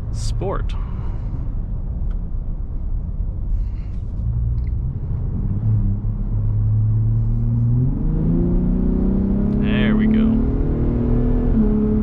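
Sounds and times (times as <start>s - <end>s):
truck engine rumble: 0.0s - 10.4s.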